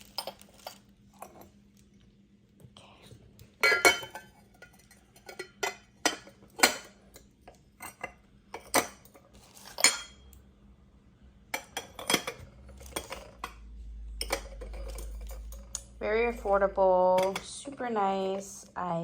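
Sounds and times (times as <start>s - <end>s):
glass parts clinking: 0.0s - 1.4s, 3.6s - 7.0s, 7.8s - 10.3s, 11.5s - 13.6s, 14.2s - 17.5s.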